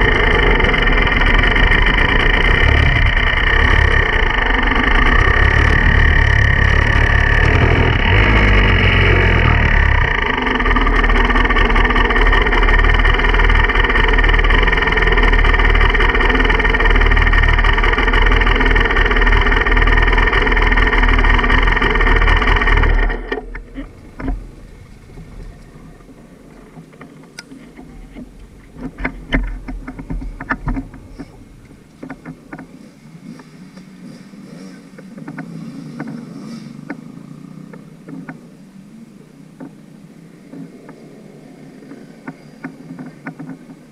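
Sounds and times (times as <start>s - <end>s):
scattered clicks and knocks: 0.0s - 25.7s, 26.5s - 32.7s, 42.2s - 43.8s
dirt bike engine running: 0.0s - 26.8s, 27.5s - 32.7s.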